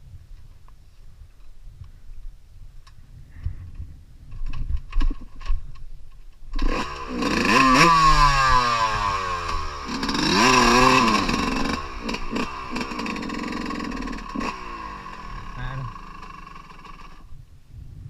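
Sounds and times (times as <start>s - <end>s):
dirt bike engine revving: 6.5s - 17.3s.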